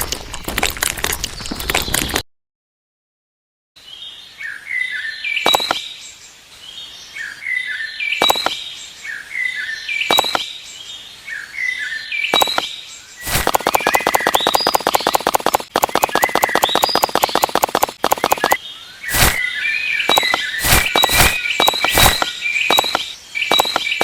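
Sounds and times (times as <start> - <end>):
bird chirping: 3.8 - 24.0
rapid run of clicks: 13.2 - 19.4, 20.1 - 24.0.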